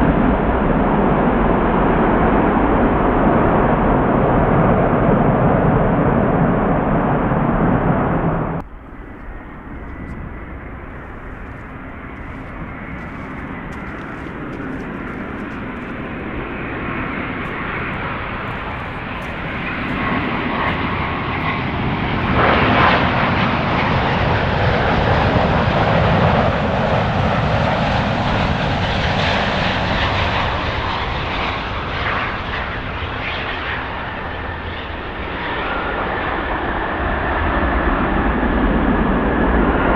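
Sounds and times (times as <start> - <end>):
jet engine roar: 0.0 - 39.9.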